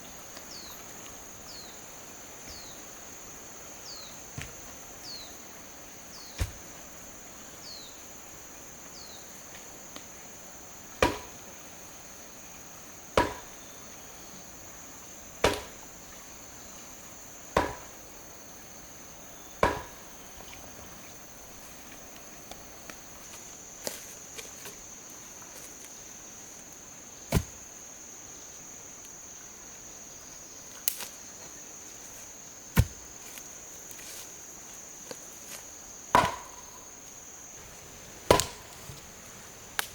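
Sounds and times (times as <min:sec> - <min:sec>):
high insect buzz: 0:00.0 - 0:39.9
tool chopping strikes: 0:06.4 - 0:06.7, 0:11.0 - 0:11.3, 0:13.2 - 0:13.5, 0:15.4 - 0:15.7, 0:17.6 - 0:17.9, 0:19.6 - 0:20.0, 0:27.3 - 0:27.6, 0:32.8 - 0:33.1, 0:36.2 - 0:36.6, 0:38.3 - 0:38.8.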